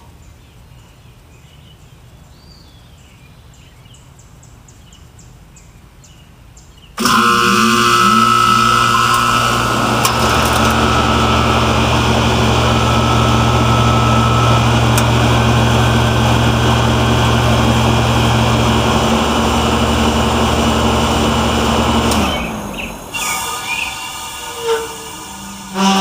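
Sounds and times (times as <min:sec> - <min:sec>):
deeper hum: 0:07.0 - 0:26.0
heat pump humming: 0:07.0 - 0:26.0.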